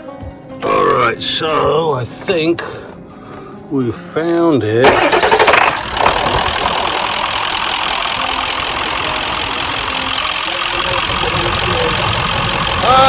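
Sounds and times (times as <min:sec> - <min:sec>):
diesel engine idling: 0:04.8 - 0:13.0.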